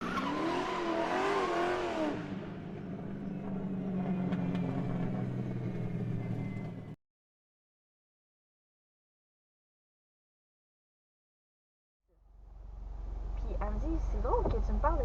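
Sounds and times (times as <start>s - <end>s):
car engine revving: 0.0s - 6.9s.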